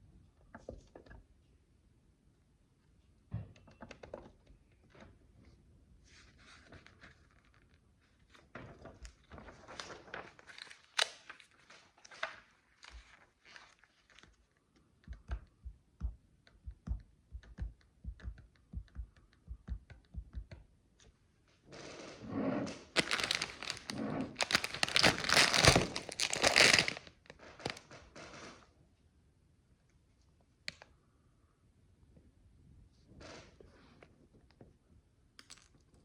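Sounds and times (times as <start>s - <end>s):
loud crinkling rustle: 23.0s - 27.8s.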